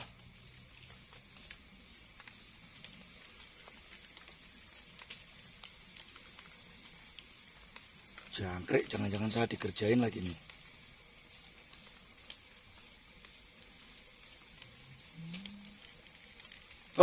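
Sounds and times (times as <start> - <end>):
low steady hiss: 0.0 - 17.0
soft ticks: 10.4 - 16.9.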